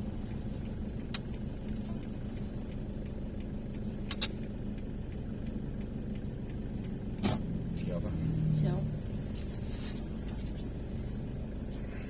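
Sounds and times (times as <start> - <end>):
faint regular ticking: 0.0 - 9.4
car engine and road rumble: 0.0 - 12.0
sharp click: 4.1 - 4.5.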